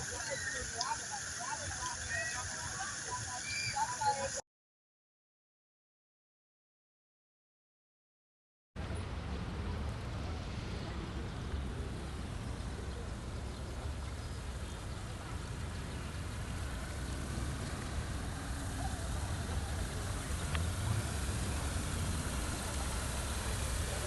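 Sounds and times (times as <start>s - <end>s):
vehicle rumble: 8.8s - 24.0s.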